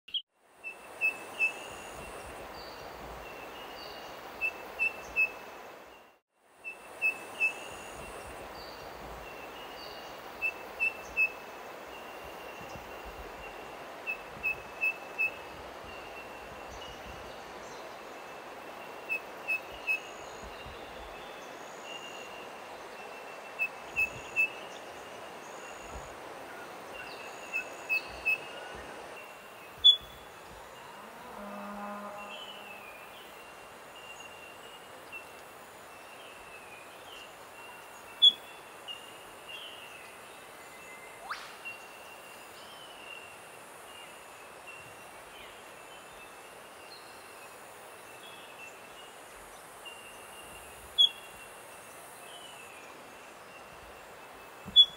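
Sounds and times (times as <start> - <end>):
bush ambience hiss: 0.4 - 54.9
bird piping notes: 29.8 - 30.2, 41.0 - 41.8.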